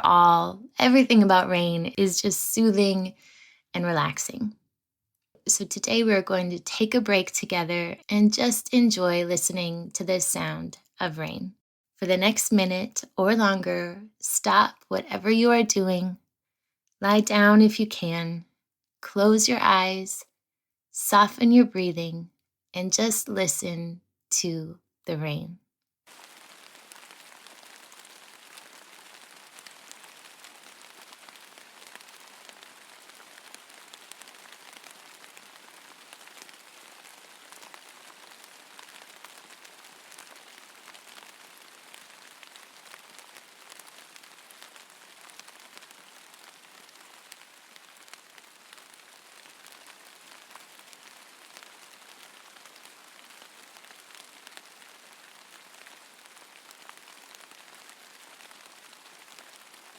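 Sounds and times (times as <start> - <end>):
steady rainfall: 26.1 - 59.9.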